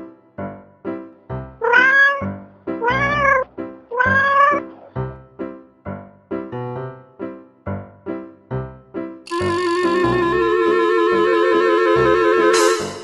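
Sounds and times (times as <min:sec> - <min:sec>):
plucked keyboard music: 0:00.0 - 0:13.0
cat meowing: 0:01.6 - 0:04.9.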